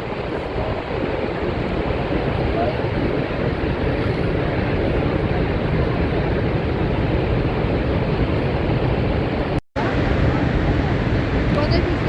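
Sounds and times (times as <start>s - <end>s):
roar of waterfall: 0.0s - 12.0s.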